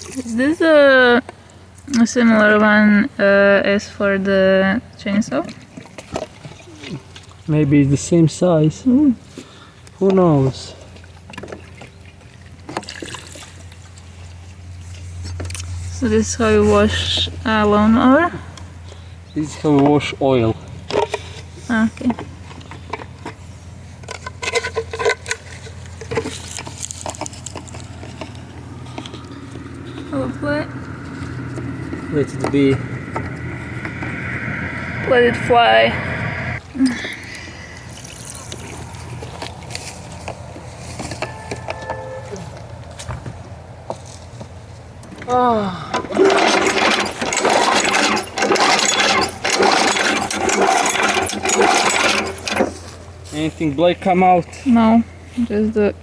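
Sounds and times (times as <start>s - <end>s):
steady low hum: 0.0s - 45.2s
metallic clinks and scrapes: 20.9s - 30.0s, 37.9s - 43.1s, 46.1s - 53.7s
lawn mower recoil starter pulls: 24.0s - 28.4s, 45.9s - 53.5s.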